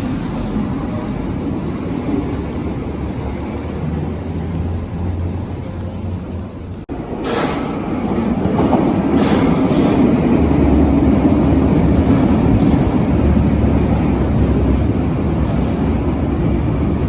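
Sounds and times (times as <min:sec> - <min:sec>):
train running on track: 0:00.0 - 0:17.0.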